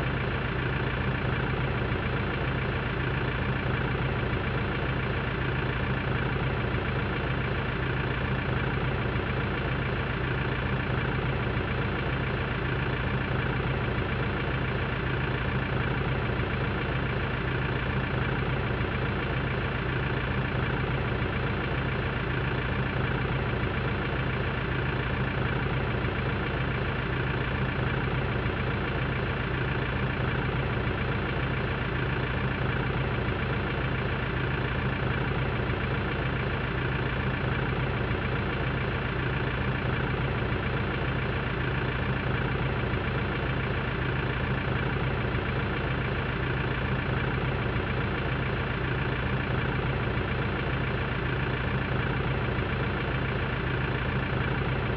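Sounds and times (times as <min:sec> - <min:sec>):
tractor engine idling: 0:00.0 - 0:54.9.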